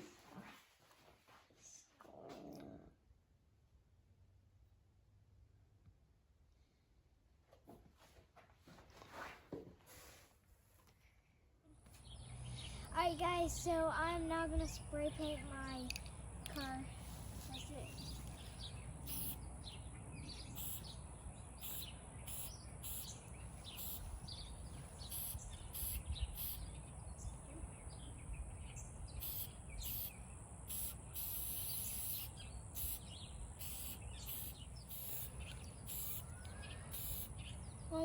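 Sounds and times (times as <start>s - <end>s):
aerosol spray can hissing: 19.1s - 19.4s, 20.6s - 20.9s, 21.6s - 23.1s, 23.7s - 24.1s, 25.1s - 26.6s, 29.2s - 30.1s, 30.7s - 37.4s.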